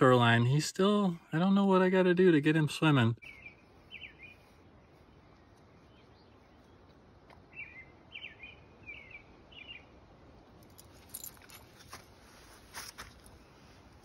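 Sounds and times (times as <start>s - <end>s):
small bird chirping: 3.2s - 10.8s.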